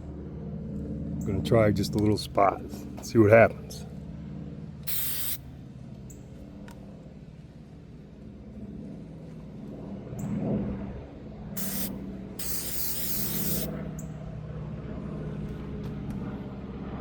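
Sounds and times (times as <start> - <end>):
steady low hum: 0.0 - 17.0
aerosol spray hiss: 4.9 - 5.4, 11.6 - 13.7.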